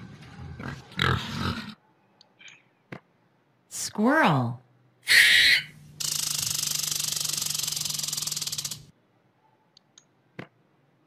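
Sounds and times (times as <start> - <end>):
squirrel chattering: 5.1 - 8.9.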